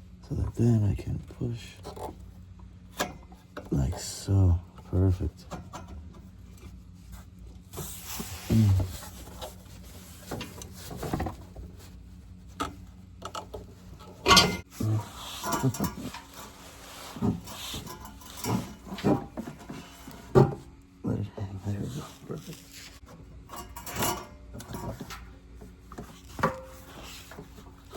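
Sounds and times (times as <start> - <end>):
person grunting: 8.5 - 9.0
metal clinks and knocks: 13.3 - 14.7.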